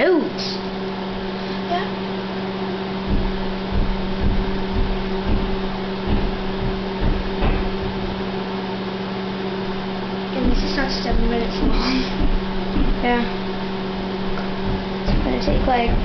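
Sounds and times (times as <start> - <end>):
microwave oven humming: 0.0 - 16.0
dull low thuds: 3.0 - 8.4, 9.7 - 16.0.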